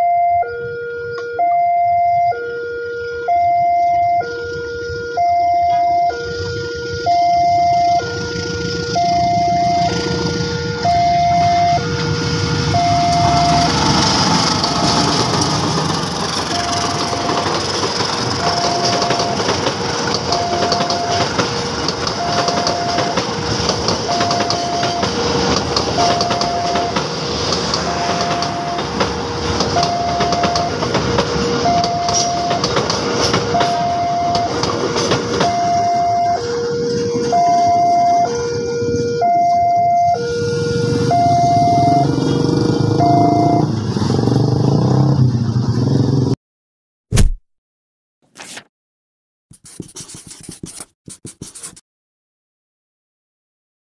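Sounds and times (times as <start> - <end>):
level crossing alarm: 0.0 - 15.5, 16.4 - 43.8
train wheels rumbling and clattering: 11.9 - 35.8.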